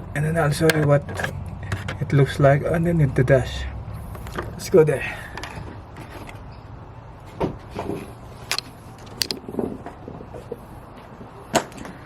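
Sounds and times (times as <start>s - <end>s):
sharp clicks and knocks: 7.3s - 10.0s.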